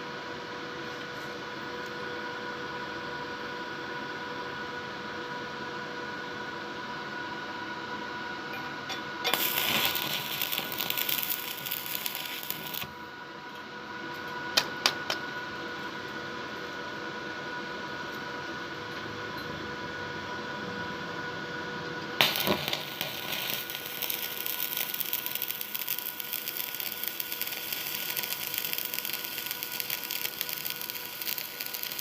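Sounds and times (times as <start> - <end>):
welding arc crackling: 9.3 - 13.0, 22.2 - 32.0
electrical hum: 9.3 - 13.4, 22.1 - 32.0.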